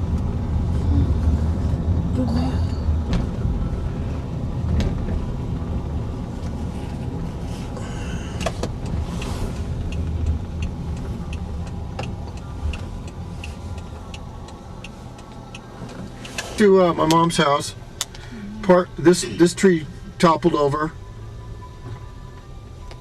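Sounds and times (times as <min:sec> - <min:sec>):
road rumble inside car: 0:00.0 - 0:23.0
light regular clicking: 0:09.8 - 0:17.2.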